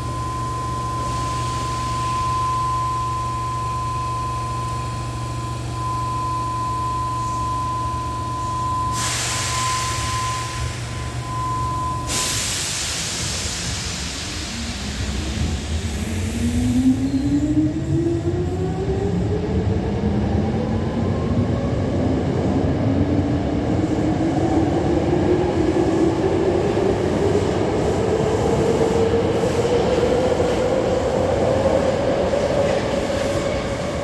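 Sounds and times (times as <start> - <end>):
train running gear rumble: 23.0 - 34.0.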